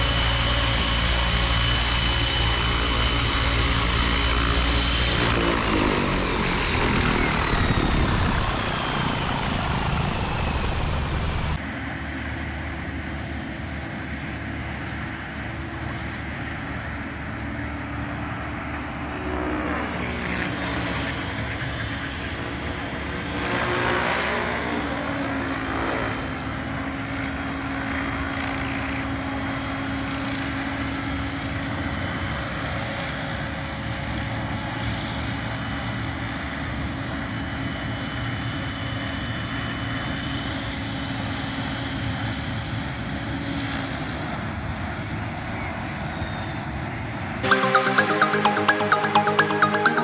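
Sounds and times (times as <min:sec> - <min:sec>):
rc helicopter rotor and motor: 0:00.0 - 0:47.3
electronic music: 0:47.4 - 0:50.0.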